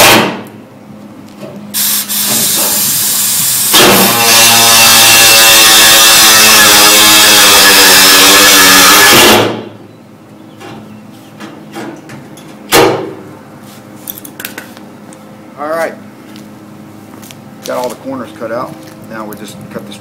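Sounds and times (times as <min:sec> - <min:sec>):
power cutting tool whining: 0:02.2 - 0:09.7
sharp knock: 0:03.8 - 0:04.1, 0:12.7 - 0:13.2.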